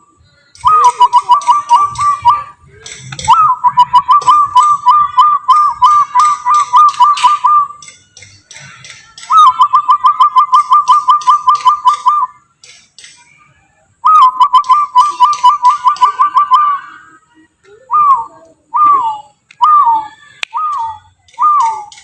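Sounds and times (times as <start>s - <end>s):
man whistling bird call: 0.6s - 2.6s, 3.2s - 7.9s, 9.3s - 12.4s, 14.0s - 16.9s, 17.9s - 22.0s.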